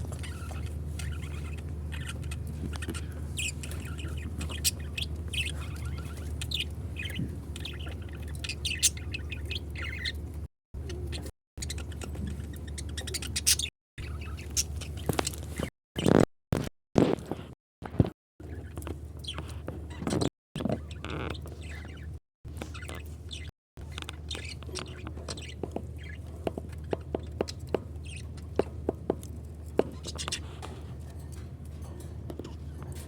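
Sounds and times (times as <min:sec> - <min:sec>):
steady low hum: 0:00.0 - 0:15.6
lovebirds chirping: 0:00.0 - 0:15.7, 0:18.4 - 0:28.7.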